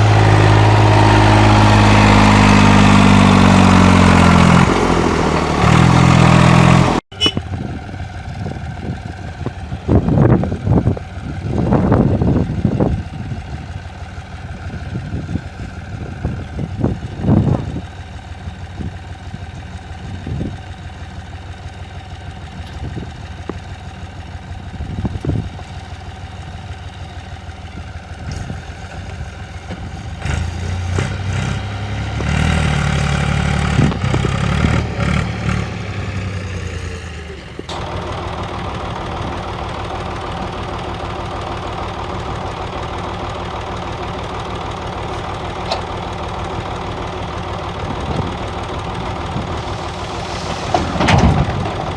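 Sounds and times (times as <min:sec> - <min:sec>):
tractor diesel engine running: 0:00.0 - 0:51.9
engine knocks: 0:37.6 - 0:51.9.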